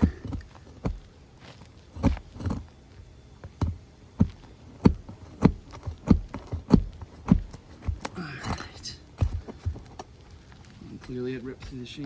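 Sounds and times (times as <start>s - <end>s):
dull knocks of hand tools: 3.4s - 10.1s.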